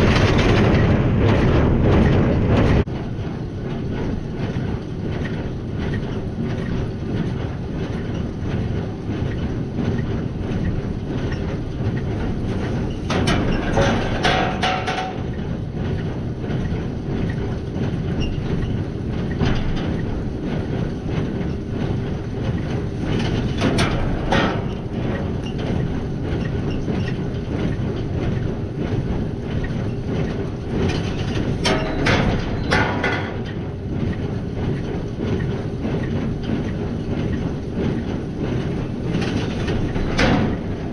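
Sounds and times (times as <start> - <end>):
loud clanking: 0.0 - 2.9, 12.7 - 15.5, 22.5 - 33.8, 34.6 - 40.9
baler mechanical clatter: 0.0 - 40.9.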